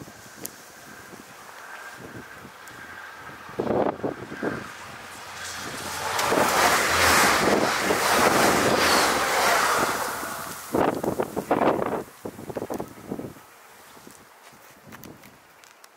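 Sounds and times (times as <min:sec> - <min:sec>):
train passing at speed: 0:00.0 - 0:12.1
wind buffeting microphone: 0:00.0 - 0:15.4.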